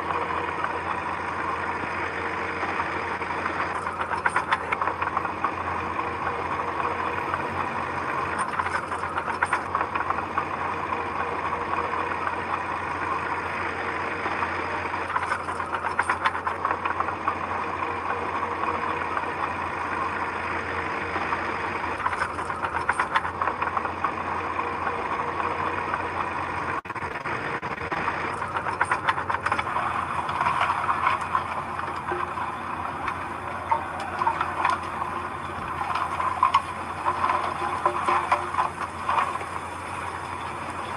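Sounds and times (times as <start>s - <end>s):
heavy machine diesel engine running: 0.0s - 40.9s.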